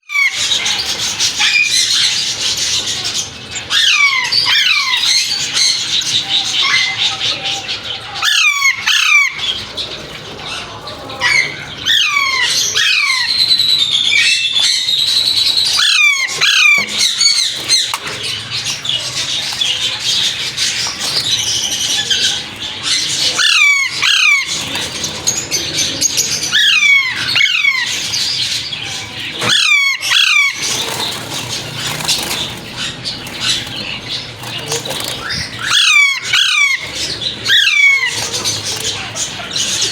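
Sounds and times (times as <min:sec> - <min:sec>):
finches chirping: 0:00.1 - 0:39.9
falling whistled bird calls: 0:11.2 - 0:39.9.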